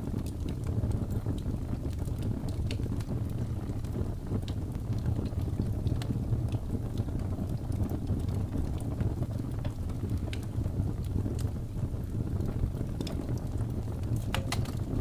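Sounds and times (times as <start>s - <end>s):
burning wood crackling and popping: 0.0s - 15.0s
fire flames rumbling: 0.0s - 15.0s.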